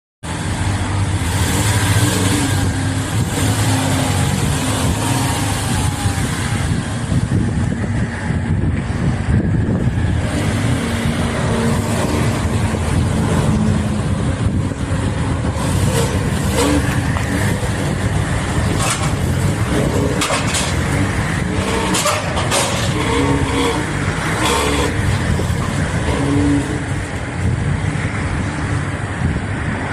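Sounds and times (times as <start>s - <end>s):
car engine rumbling: 0.2s - 29.9s
sharp metallic clanks: 18.7s - 25.8s.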